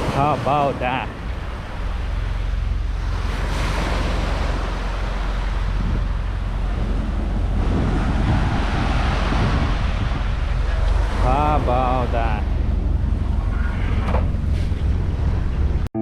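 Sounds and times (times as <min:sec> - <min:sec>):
sea waves rushing: 0:00.0 - 0:15.9
wind buffeting microphone: 0:00.0 - 0:15.9.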